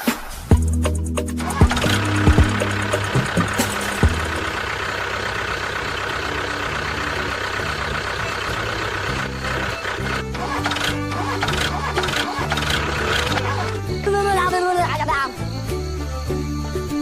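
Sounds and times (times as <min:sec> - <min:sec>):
low background music: 0:00.5 - 0:04.7, 0:12.8 - 0:17.0
small motor running: 0:01.4 - 0:17.0
sharp clicks: 0:01.6 - 0:04.6, 0:08.4 - 0:13.8.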